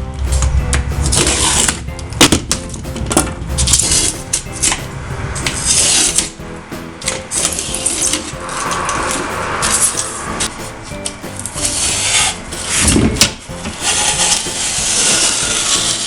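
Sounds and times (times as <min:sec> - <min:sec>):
background music: 0:00.0 - 0:16.0
foam board scraping: 0:00.3 - 0:16.0.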